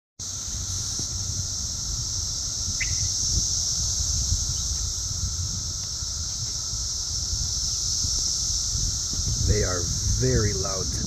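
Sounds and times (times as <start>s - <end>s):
cicadas droning: 0.2s - 11.0s.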